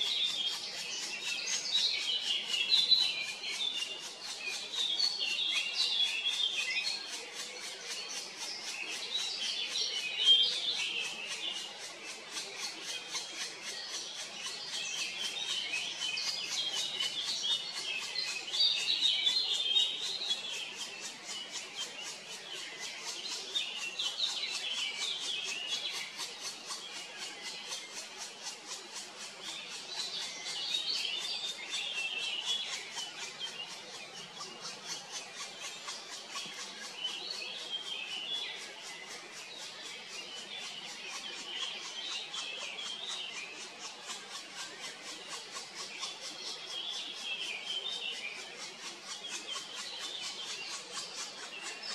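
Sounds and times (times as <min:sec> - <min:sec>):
birds chirping and twittering: 0:00.0 - 0:51.9.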